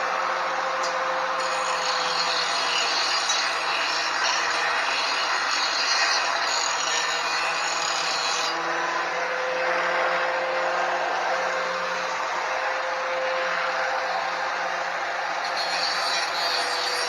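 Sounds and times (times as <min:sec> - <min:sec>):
angle grinder grinding steel: 0:00.7 - 0:12.2, 0:15.3 - 0:17.0.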